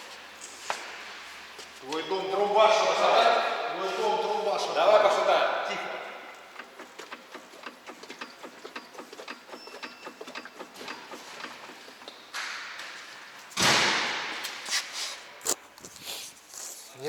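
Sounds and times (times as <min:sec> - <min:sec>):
car suspension knocking: 0:06.5 - 0:12.0
loud suspension thump: 0:13.5 - 0:14.6.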